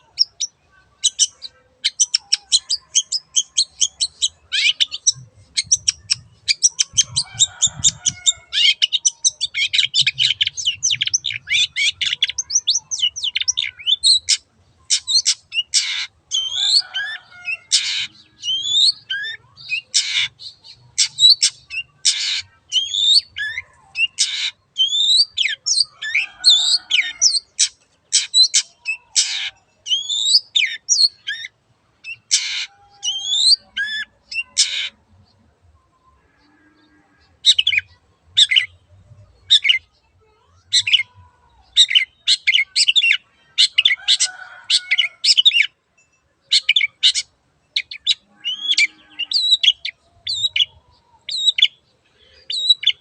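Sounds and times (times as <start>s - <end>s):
shrike chattering and calling: 0.0s - 35.0s.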